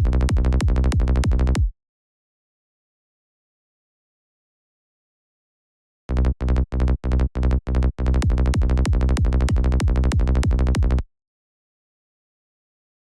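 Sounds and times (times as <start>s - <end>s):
electronic kick drum and synth bass: 0.0s - 1.7s, 8.2s - 11.0s.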